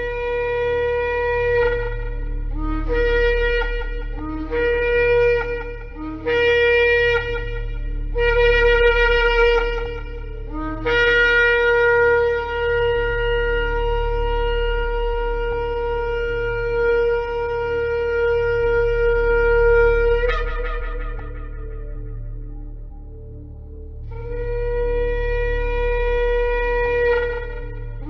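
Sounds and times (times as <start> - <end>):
ram's horn blasts: 0.0 - 23.1.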